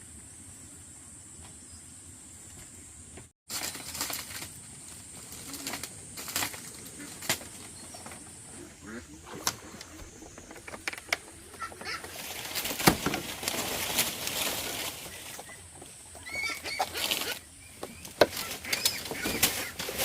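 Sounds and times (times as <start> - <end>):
wings flapping: 3.5 - 8.2, 8.9 - 15.6, 16.2 - 20.0
birds chirping: 5.3 - 12.8, 14.3 - 20.0.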